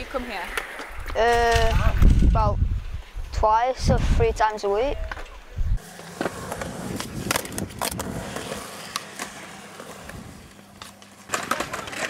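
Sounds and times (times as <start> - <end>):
wheels rolling over concrete: 5.0 - 12.0
boards clacking on ramps: 10.8 - 12.0.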